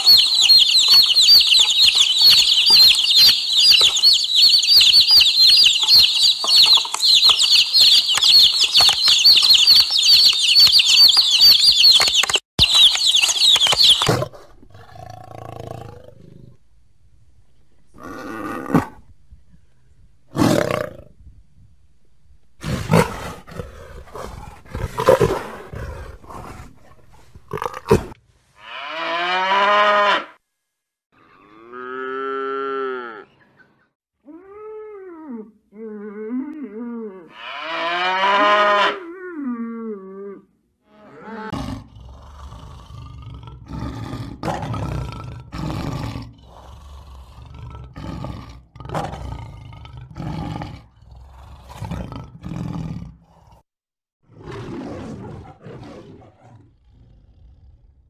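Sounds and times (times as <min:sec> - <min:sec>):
lion roaring: 0:14.1 - 0:16.6, 0:20.3 - 0:21.1, 0:22.6 - 0:28.2, 0:41.5 - 0:53.6, 0:54.3 - 0:58.0
calf mooing: 0:28.6 - 0:30.3, 0:34.3 - 0:40.0.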